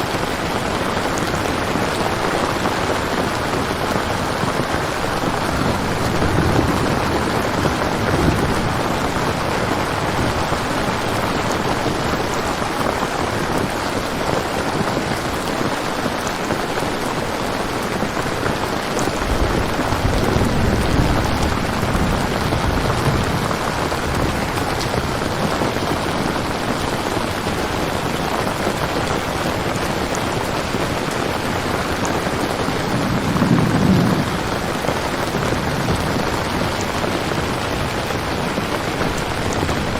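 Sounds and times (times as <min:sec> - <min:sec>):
steady rain: 0:00.0 - 0:39.9
thunder rolling: 0:01.9 - 0:12.6, 0:18.6 - 0:27.0, 0:31.4 - 0:39.9.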